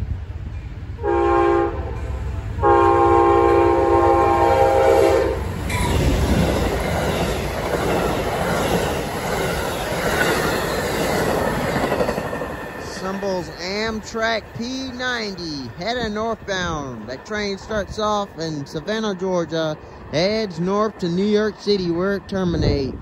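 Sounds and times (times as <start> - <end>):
train rushing past: 0.0 - 23.0
train horn blasts: 1.0 - 5.5
wheels clattering over rail joints: 5.5 - 19.0.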